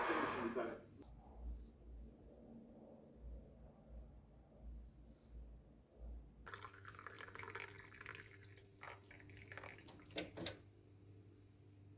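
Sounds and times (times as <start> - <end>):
liquid pouring and splashing: 6.5 - 10.6.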